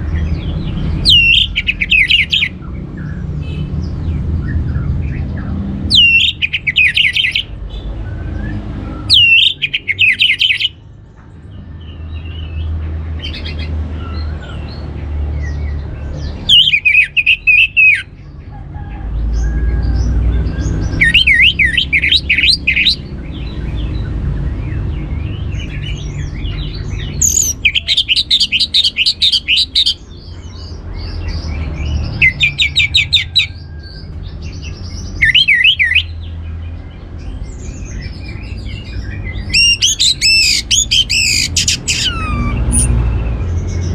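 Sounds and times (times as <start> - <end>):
soft bird chirps: 0.0 - 2.6, 5.9 - 10.7, 16.4 - 18.1, 20.6 - 24.0, 25.5 - 30.3, 37.6 - 43.9
thrush singing: 0.8 - 2.6, 5.9 - 7.5, 9.0 - 10.7, 21.0 - 23.0, 27.2 - 30.0, 38.7 - 43.4.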